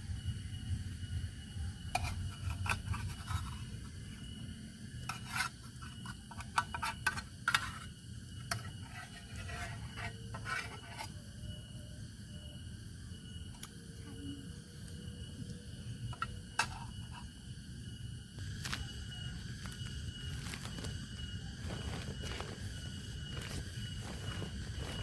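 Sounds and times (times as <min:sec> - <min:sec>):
scraping and rubbing strokes: 0:18.4 - 0:25.0.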